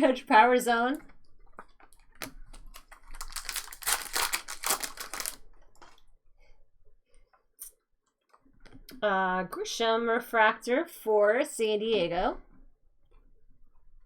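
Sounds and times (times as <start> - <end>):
cards rustling: 2.2 - 6.0.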